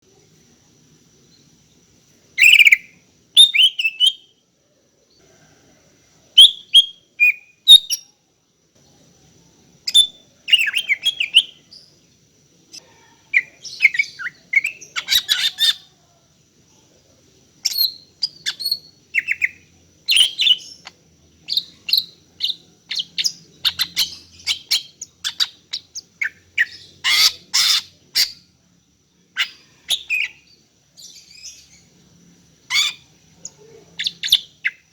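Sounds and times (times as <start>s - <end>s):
bird chirping calls: 2.4s - 4.3s, 9.9s - 16.0s, 17.6s - 28.5s, 32.7s - 34.9s.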